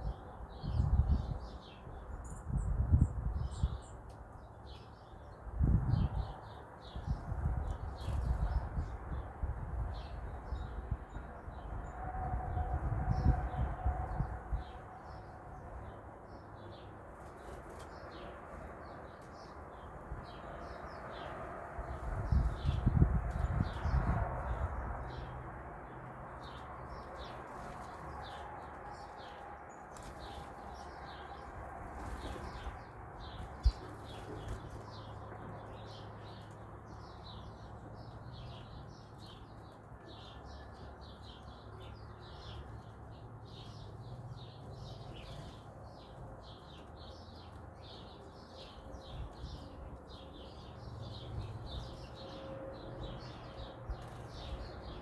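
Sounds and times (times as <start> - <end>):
small birds chirping: 14.6 - 55.0.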